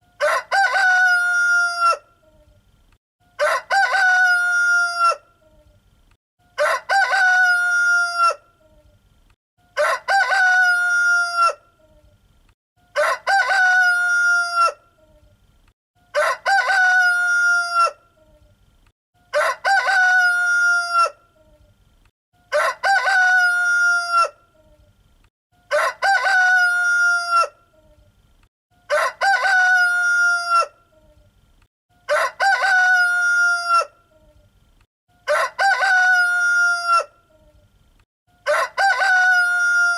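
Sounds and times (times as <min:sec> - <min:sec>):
rooster crowing: 0:00.2 - 0:02.1, 0:03.3 - 0:05.3, 0:06.6 - 0:08.4, 0:09.8 - 0:11.6, 0:12.9 - 0:14.8, 0:16.1 - 0:18.0, 0:19.3 - 0:21.2, 0:22.4 - 0:24.4, 0:25.6 - 0:27.6, 0:28.8 - 0:30.8, 0:32.0 - 0:34.0, 0:35.2 - 0:37.2, 0:38.4 - 0:39.9.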